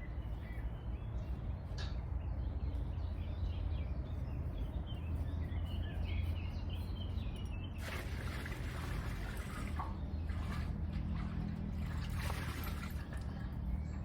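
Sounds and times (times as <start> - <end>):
small birds chirping faintly: 0.0 - 11.0.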